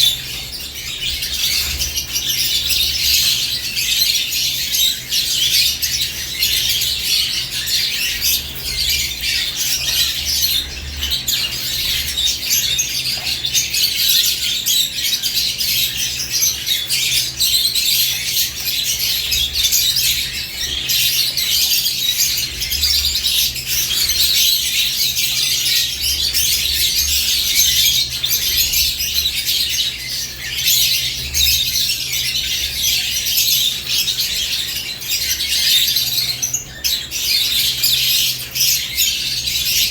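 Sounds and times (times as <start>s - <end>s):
lovebirds chirping and squawking: 0.0s - 39.9s.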